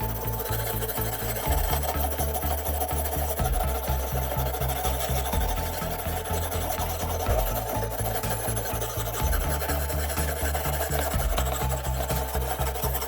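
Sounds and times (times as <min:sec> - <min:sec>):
background music with steady beat: 0:00.0 - 0:13.0
rasping scraping strokes: 0:00.0 - 0:13.0.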